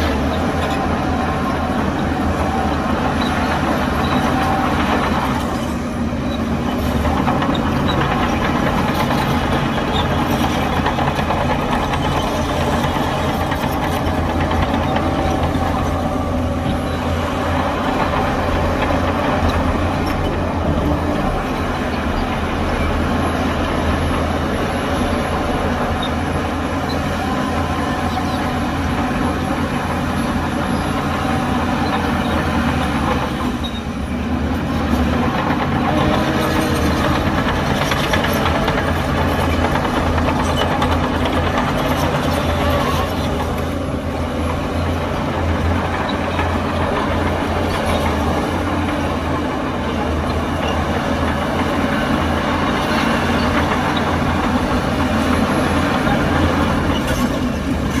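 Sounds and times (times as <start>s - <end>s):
heavy diesel machinery drone: 0.0s - 58.0s.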